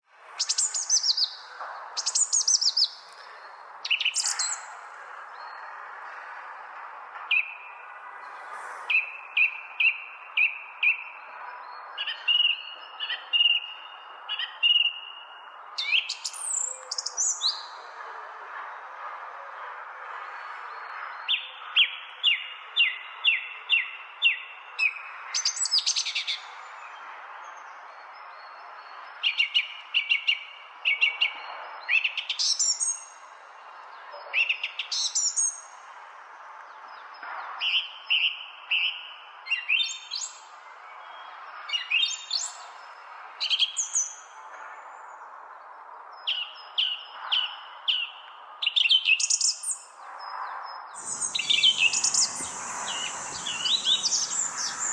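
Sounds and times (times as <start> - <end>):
songbirds chirping and whistling: 0.3 - 5.8, 7.3 - 17.9, 50.9 - 54.9
steady background noise: 51.0 - 54.9.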